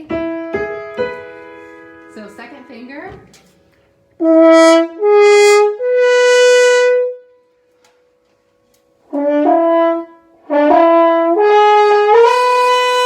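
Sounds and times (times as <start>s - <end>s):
french horn playing: 4.2s - 7.6s, 9.0s - 13.0s.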